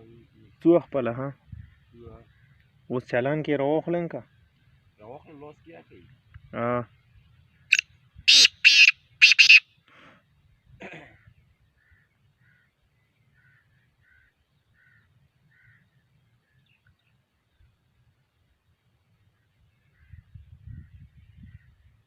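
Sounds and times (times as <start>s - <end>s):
harsh rasping bird call: 7.7s - 9.7s.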